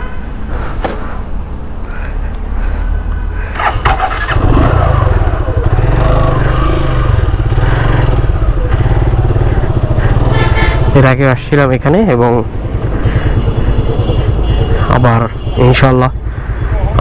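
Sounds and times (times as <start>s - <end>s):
motorcycle engine running: 3.5s - 15.5s.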